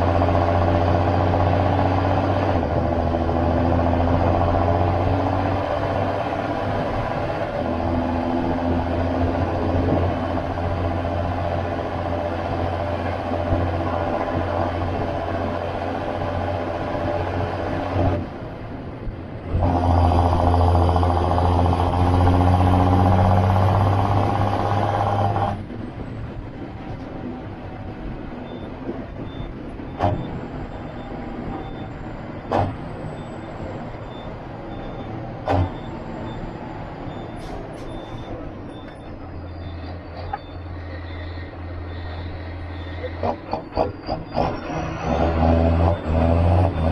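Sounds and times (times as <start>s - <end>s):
tractor diesel engine running: 0.0s - 46.3s.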